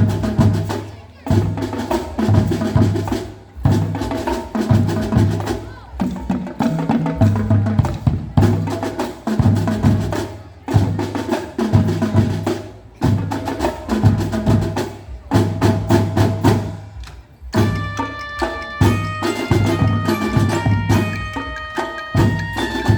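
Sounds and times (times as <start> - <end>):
drum and percussion hits: 0.0 - 22.9
marching band playing: 0.0 - 22.9
ringing bell-like notes: 17.6 - 22.9.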